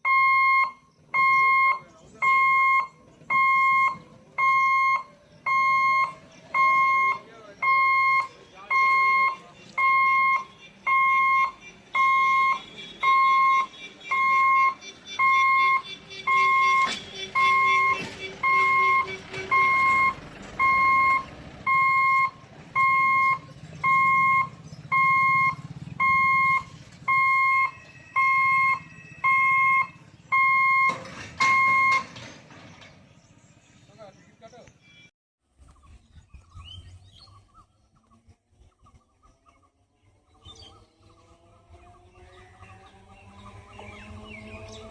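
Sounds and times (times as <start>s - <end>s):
level crossing alarm beeping: 0.0s - 32.3s.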